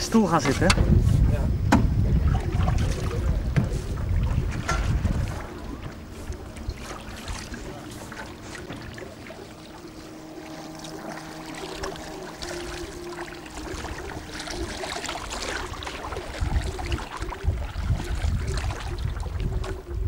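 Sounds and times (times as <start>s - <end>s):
faint steady hum: 0.0s - 20.0s
water splashing around a canoe: 0.0s - 20.0s
wind buffeting microphone: 0.0s - 20.0s.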